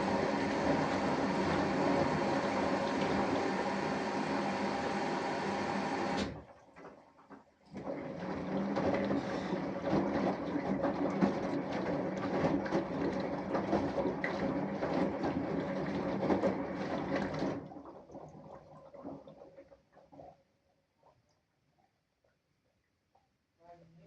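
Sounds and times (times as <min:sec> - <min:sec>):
washing machine drum turning: 0:00.0 - 0:06.4, 0:07.8 - 0:17.7
laundry and water sloshing: 0:00.0 - 0:20.4
washing machine hum: 0:00.0 - 0:20.4.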